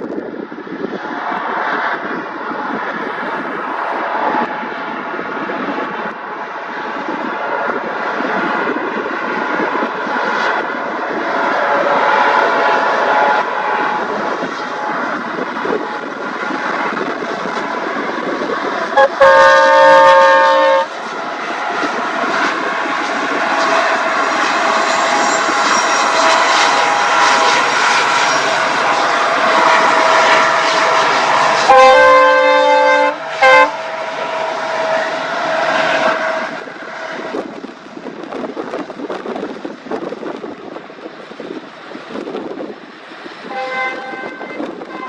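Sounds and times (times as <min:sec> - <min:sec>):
train passing at speed: 0:00.0 - 0:45.0
locomotive horn blast: 0:11.5 - 0:14.0, 0:18.9 - 0:37.5, 0:43.4 - 0:45.0.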